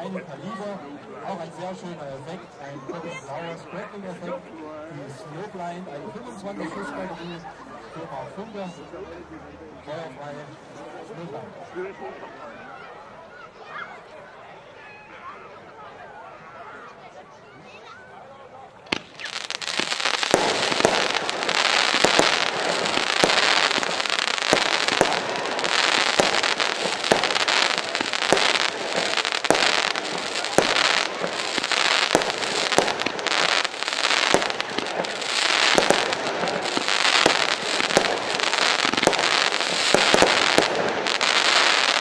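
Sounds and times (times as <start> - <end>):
firework battery crackling shots: 18.9 - 42.0.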